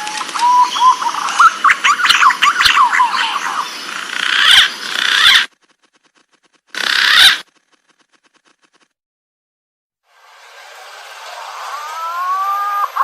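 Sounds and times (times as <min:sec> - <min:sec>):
pigeon whistled calls: 0:00.0 - 0:03.6.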